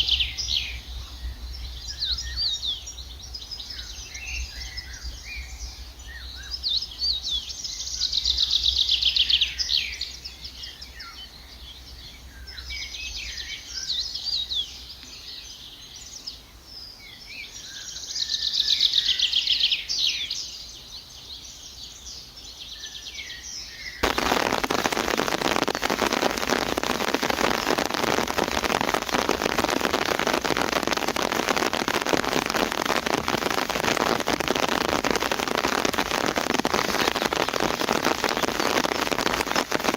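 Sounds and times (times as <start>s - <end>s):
dense patter of crackles: 0.0s - 2.2s, 24.0s - 39.9s.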